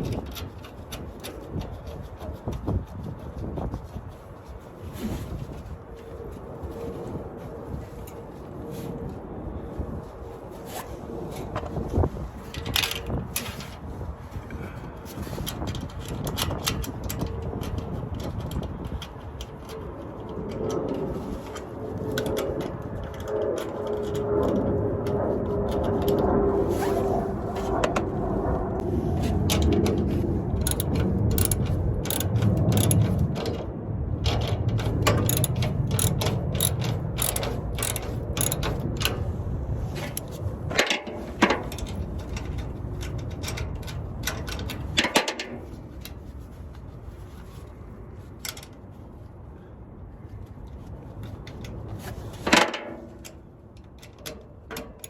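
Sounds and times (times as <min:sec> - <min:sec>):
steady low rumble: 0:00.0 - 0:54.2
ratchet wrench clicking: 0:30.6 - 0:33.2, 0:34.3 - 0:39.2.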